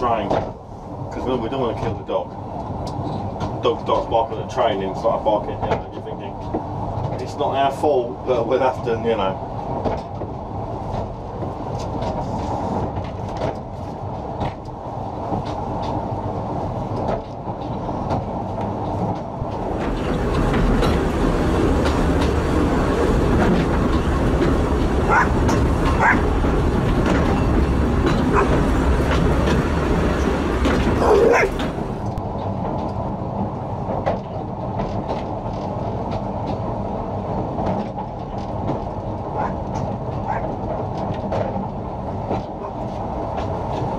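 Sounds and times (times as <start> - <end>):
wind rushing over microphone: 0.0 - 33.9
train wheels clicking over rail joints: 0.0 - 43.9.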